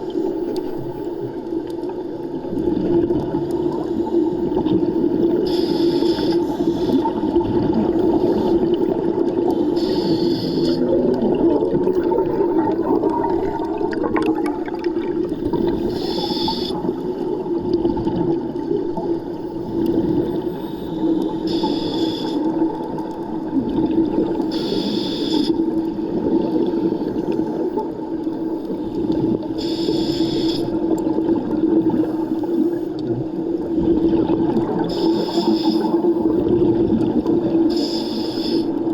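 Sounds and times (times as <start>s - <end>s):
steady underwater hum: 0.0s - 38.9s
regulator breathing hiss: 3.6s - 11.2s, 15.4s - 17.5s, 19.2s - 22.8s, 24.4s - 25.9s, 26.8s - 30.9s, 31.8s - 33.0s, 34.8s - 36.4s, 37.7s - 38.9s.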